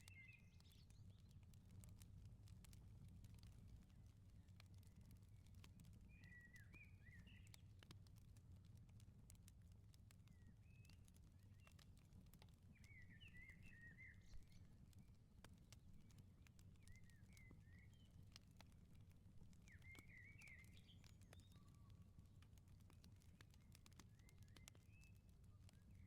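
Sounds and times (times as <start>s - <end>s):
small birds chirping: 0.0s - 2.1s, 2.7s - 8.0s, 10.1s - 26.0s
wood fire crackling: 0.1s - 26.0s.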